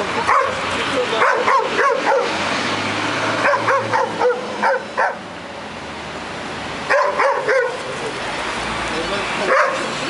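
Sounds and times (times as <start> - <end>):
dog yapping: 1.2 - 2.3, 3.4 - 5.2, 6.9 - 7.8.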